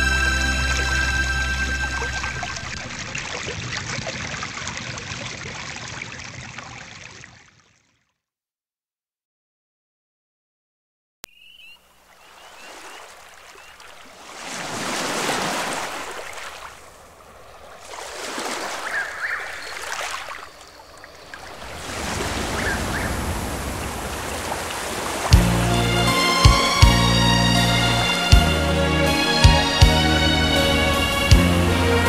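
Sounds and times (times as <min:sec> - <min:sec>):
music with heavy bass: 0:00.0 - 0:02.8, 0:25.3 - 0:32.0
ocean waves washing in: 0:00.0 - 0:07.3, 0:12.4 - 0:28.3.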